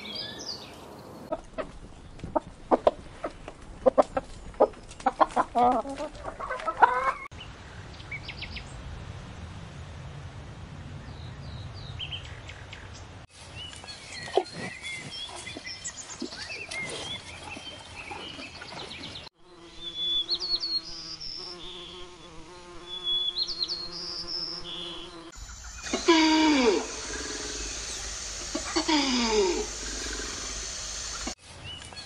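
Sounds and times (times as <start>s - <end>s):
small birds chirping: 0.0s - 5.3s, 11.1s - 32.0s
flying insect buzzing: 19.4s - 31.4s.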